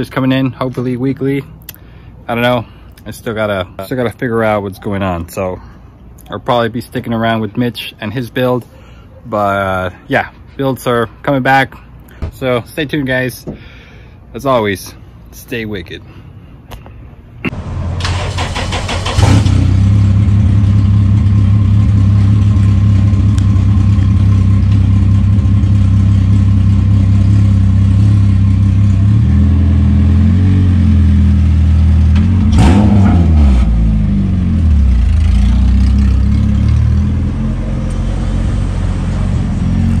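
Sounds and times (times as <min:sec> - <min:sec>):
car engine starting and running: 0:17.5 - 0:40.0.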